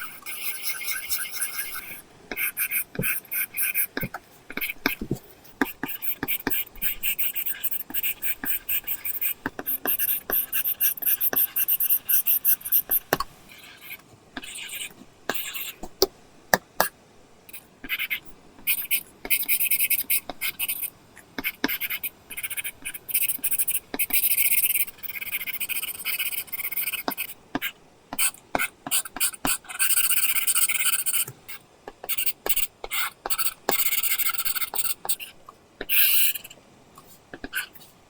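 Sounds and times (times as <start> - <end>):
pencil scratching on screen: 0.0 - 15.8, 17.5 - 27.4.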